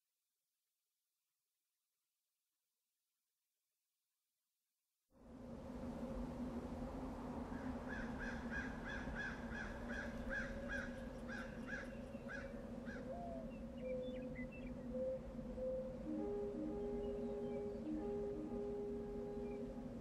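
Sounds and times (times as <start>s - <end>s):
steady low drone: 5.2s - 20.0s
bird calling: 7.9s - 19.7s.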